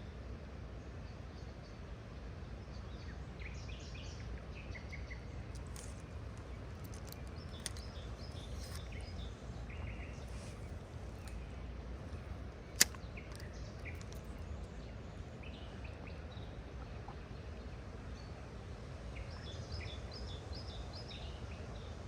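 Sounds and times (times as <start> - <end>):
sharp click: 5.6 - 9.3, 12.8 - 14.4.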